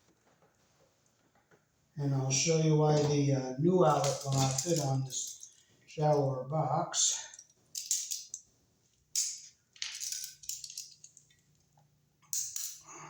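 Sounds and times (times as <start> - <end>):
wires clinking in metal box: 3.8 - 6.3, 6.9 - 8.4, 9.2 - 11.5, 12.3 - 12.9.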